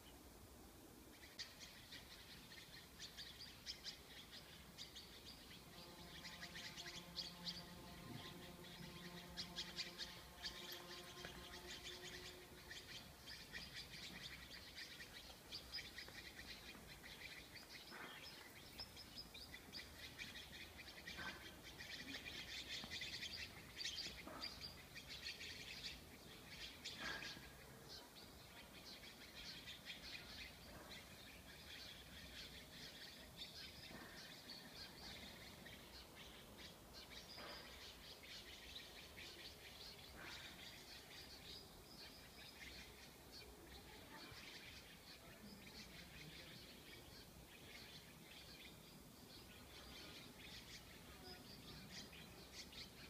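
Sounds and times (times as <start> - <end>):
small birds chirping: 0.0 - 53.0
faint droning tone: 2.1 - 26.8.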